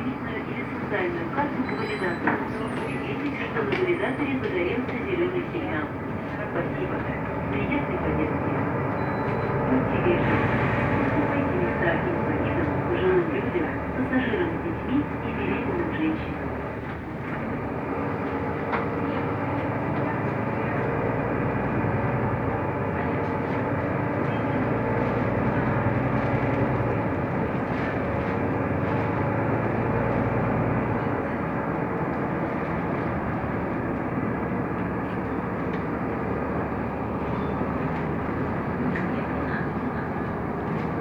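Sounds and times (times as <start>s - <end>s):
bus engine running: 0.0s - 41.0s
road noise: 0.0s - 41.0s.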